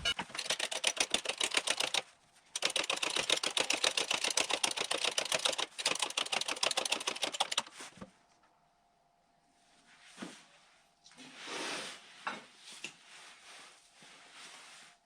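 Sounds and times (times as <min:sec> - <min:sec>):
rapid mechanical clicking: 0:00.0 - 0:07.8.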